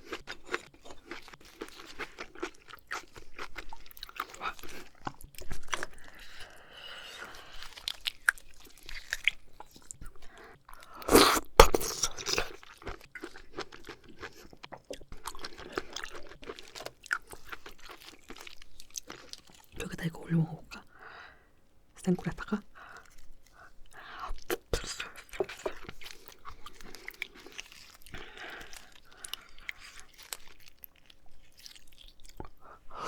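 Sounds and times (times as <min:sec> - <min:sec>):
chewing and biting oysters: 0:00.0 - 0:19.8, 0:22.8 - 0:33.0
sharp mouth sounds: 0:11.0 - 0:12.5.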